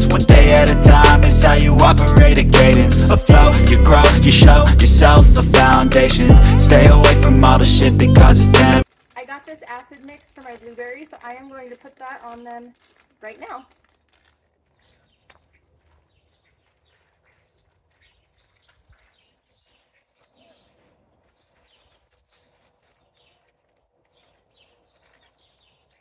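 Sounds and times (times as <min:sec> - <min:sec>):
faint birds chirping: 0:13.5 - 0:26.0.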